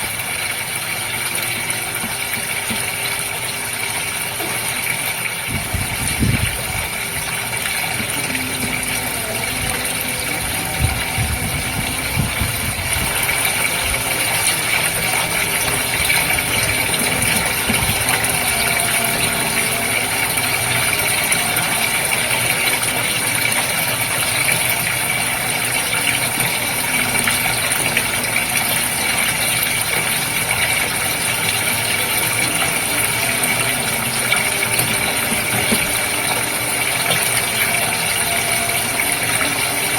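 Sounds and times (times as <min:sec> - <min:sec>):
aquarium pump humming: 0:00.0 - 0:39.9
aquarium water bubbling: 0:00.0 - 0:39.9.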